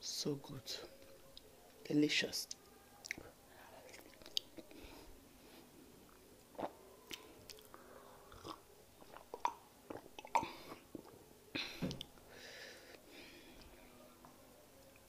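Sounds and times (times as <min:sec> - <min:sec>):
wet chewing and lip smacks: 0:03.0 - 0:03.3, 0:03.9 - 0:04.8, 0:06.1 - 0:07.8.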